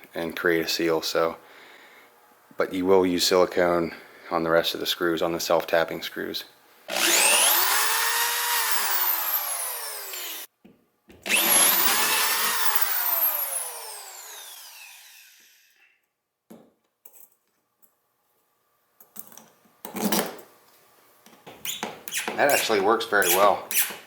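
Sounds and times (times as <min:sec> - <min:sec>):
power drill whining: 0:06.9 - 0:10.5, 0:11.3 - 0:15.9.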